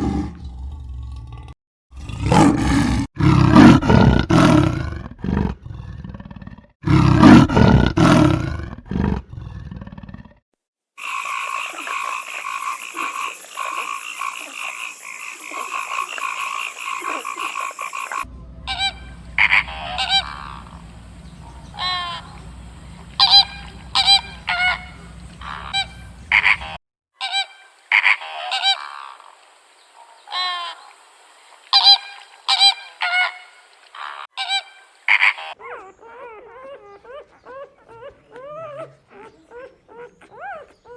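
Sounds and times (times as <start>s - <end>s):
bird calling: 11.0s - 35.6s.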